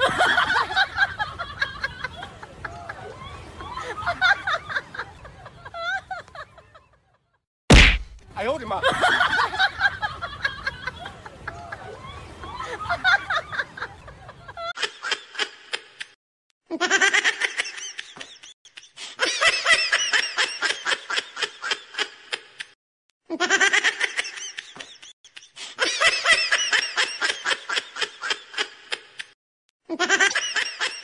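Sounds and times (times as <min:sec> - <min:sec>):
person laughing: 0:29.9 - 0:31.0.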